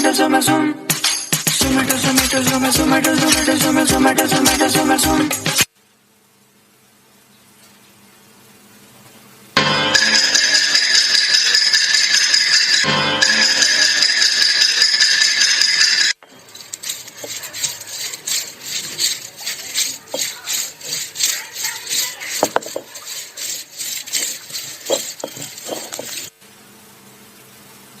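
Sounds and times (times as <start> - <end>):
rhythmic rasping like sawing: 1.6 - 5.7, 10.0 - 26.3
loud hissing with held tones: 16.2 - 28.0.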